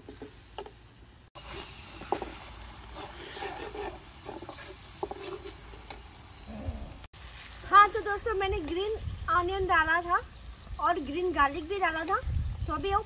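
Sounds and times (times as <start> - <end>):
oil sizzling: 0.0 - 6.5, 7.1 - 13.0
metal spatula scraping a wok: 1.4 - 6.0.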